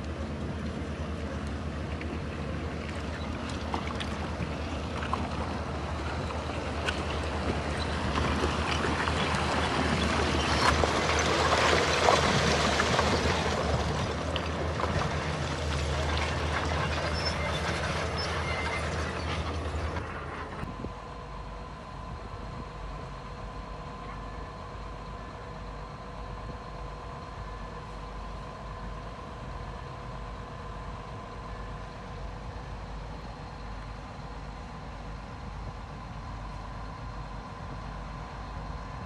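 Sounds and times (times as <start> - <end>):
heavy diesel machinery running: 0.0 - 39.0.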